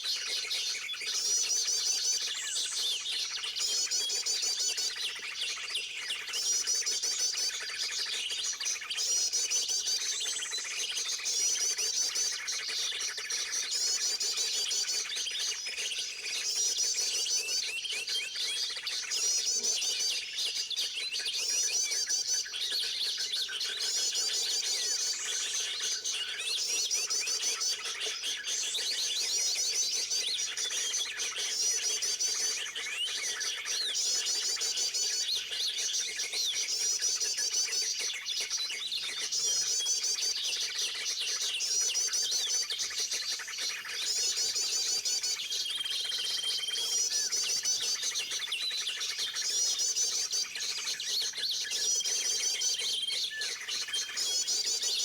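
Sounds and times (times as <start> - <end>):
small birds twittering: 38.2 - 55.0.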